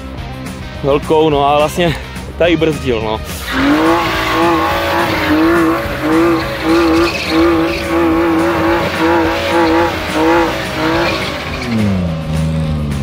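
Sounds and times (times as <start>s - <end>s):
car engine at high revs: 3.4s - 13.0s
tyre noise: 3.4s - 13.0s.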